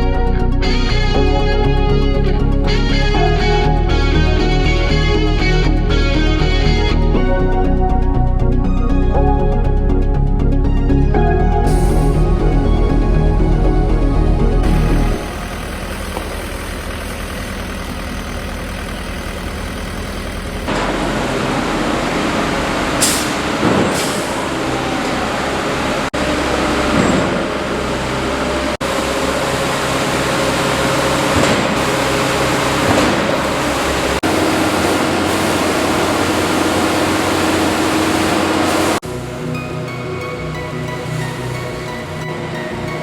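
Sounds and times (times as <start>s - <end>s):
diesel truck engines running: 0.0s - 43.0s.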